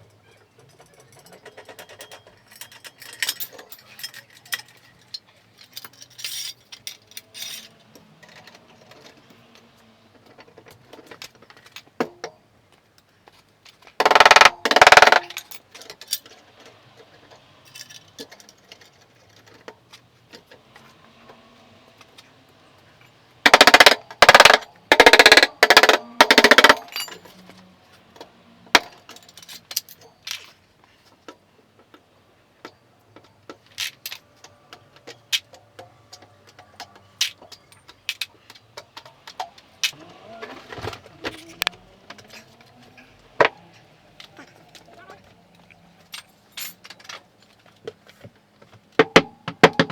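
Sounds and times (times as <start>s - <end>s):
rapid metallic impacts: 23.5s - 27.4s.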